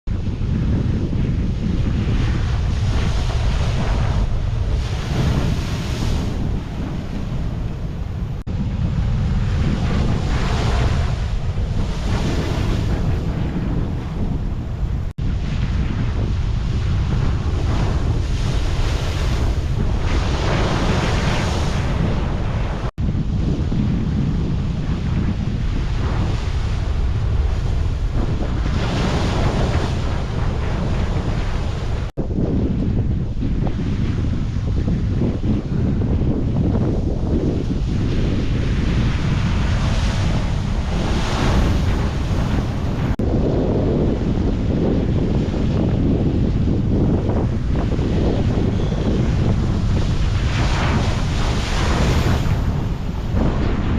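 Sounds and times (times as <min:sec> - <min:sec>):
wind buffeting microphone: 0:00.1 - 0:53.9
ocean waves crashing on rocks: 0:38.4 - 0:43.2, 0:49.0 - 0:53.9
waves crashing over rocks: 0:38.4 - 0:43.2.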